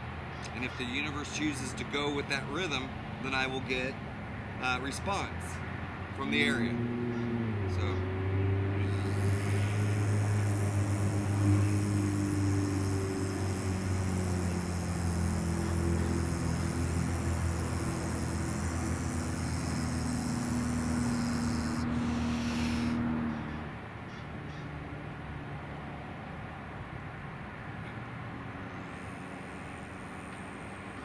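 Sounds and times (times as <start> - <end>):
man humming low notes: 7.7 - 23.3.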